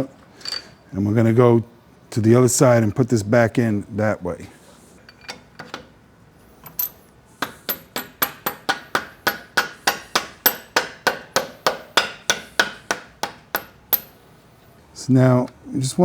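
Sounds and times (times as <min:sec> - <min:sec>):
mallet knocking on steel shaft: 0:07.4 - 0:14.1.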